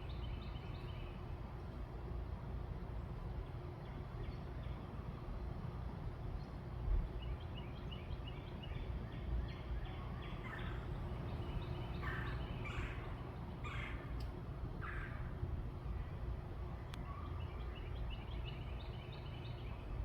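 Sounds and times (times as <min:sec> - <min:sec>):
low background rumble: 0:00.0 - 0:20.0
harsh rattling bird calls: 0:08.3 - 0:14.2, 0:14.8 - 0:15.4.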